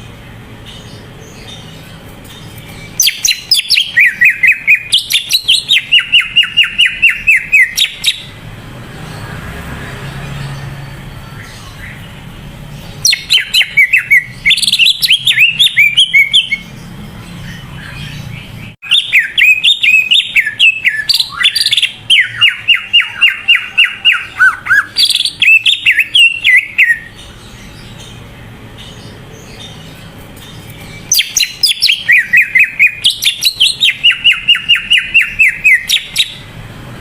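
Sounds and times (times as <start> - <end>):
bird singing whistled notes: 2.9 - 8.4, 13.0 - 16.8, 17.4 - 28.2, 30.6 - 36.5.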